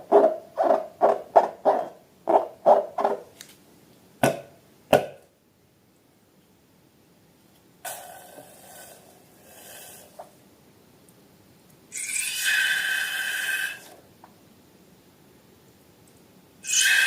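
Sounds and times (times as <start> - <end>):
air hissing out of balloon: 12.0 - 14.0, 16.6 - 17.0
balloon neck squealing: 16.6 - 17.0.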